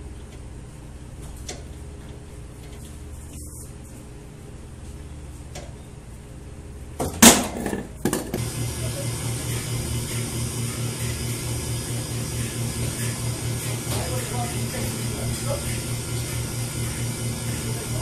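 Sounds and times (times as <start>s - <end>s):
machine motor pulsing hum: 7.6s - 18.0s
machine hiss: 8.4s - 18.0s.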